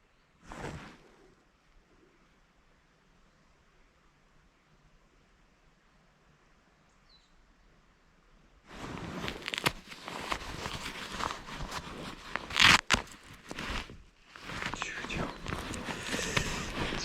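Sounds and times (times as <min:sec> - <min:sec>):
rustling and crinkling handling: 0:08.7 - 0:17.0.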